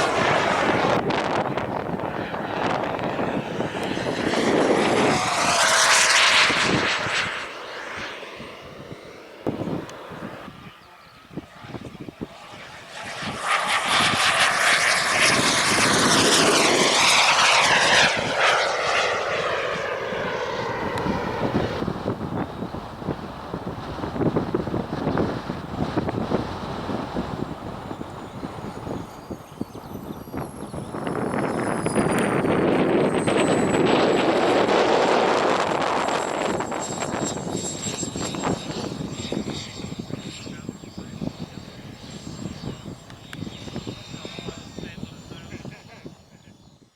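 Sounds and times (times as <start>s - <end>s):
high whine: 0.0s - 46.9s
model aircraft engine flying past: 0.0s - 46.9s.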